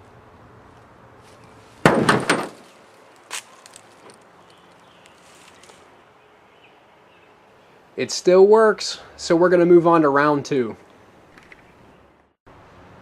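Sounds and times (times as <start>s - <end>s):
sledgehammer striking metal: 1.8s - 2.7s
rattle of knocks: 1.9s - 2.7s.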